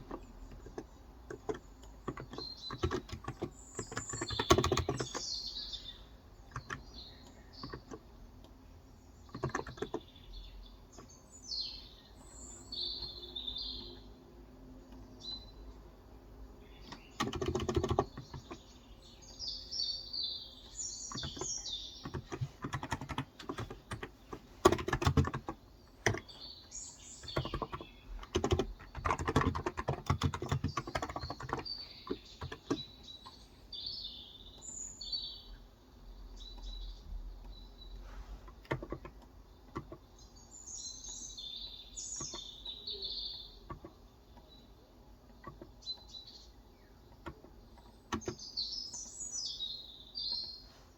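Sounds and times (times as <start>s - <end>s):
keyboard typing: 0.0s - 5.3s, 6.4s - 8.6s, 9.2s - 10.1s, 16.8s - 18.7s, 21.1s - 26.4s, 27.2s - 33.4s, 38.5s - 40.1s, 42.2s - 44.5s, 47.1s - 48.4s
small birds chirping: 0.0s - 50.9s.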